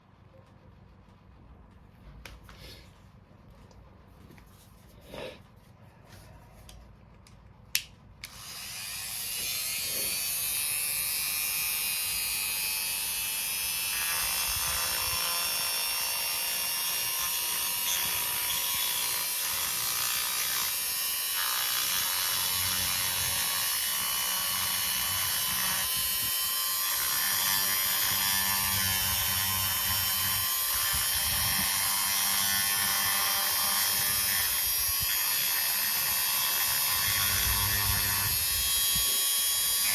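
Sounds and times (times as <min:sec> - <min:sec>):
rotary tool motor whine: 0:08.3 - 0:39.9.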